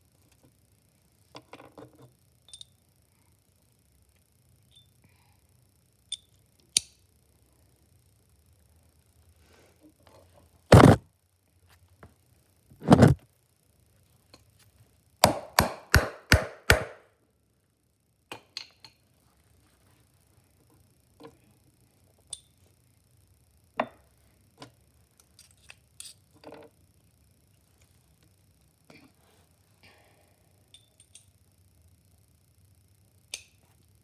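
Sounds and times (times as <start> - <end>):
hammer striking hole punch: 10.8 - 11.0, 15.2 - 17.0.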